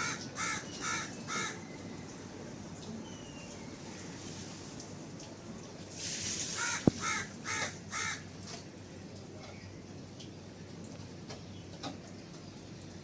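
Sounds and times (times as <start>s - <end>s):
crow cawing: 0.0s - 1.6s, 6.6s - 8.3s.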